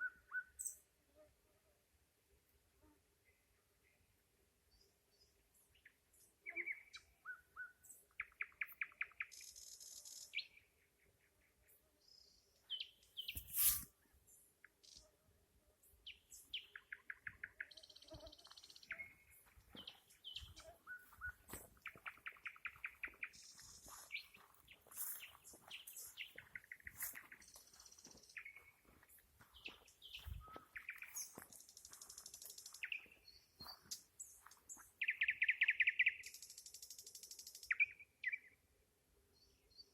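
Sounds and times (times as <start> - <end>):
nightingale singing: 4.7 - 10.7, 12.0 - 13.8, 16.0 - 38.6.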